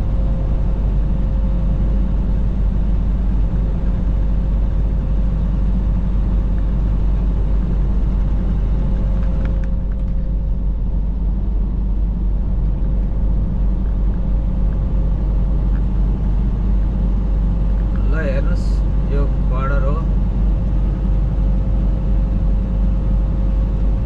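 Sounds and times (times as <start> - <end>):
faint steady hum: 0.0 - 24.0
truck engine and road rumble: 0.0 - 24.0.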